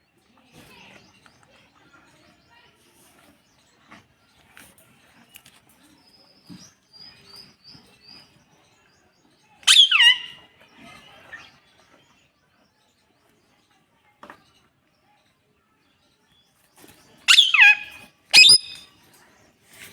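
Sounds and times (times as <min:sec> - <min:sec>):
parrot screeching: 0:09.6 - 0:10.4, 0:17.3 - 0:18.8
faint short chirps: 0:18.4 - 0:18.9.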